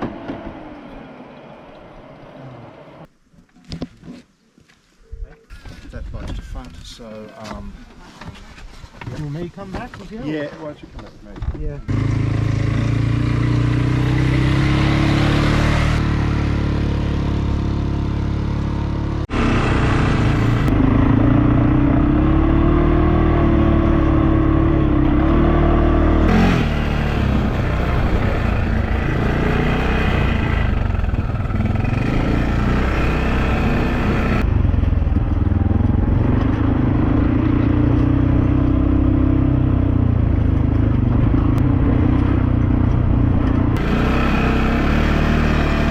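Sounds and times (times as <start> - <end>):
quad bike engine revving: 11.9 - 42.8, 43.8 - 45.9.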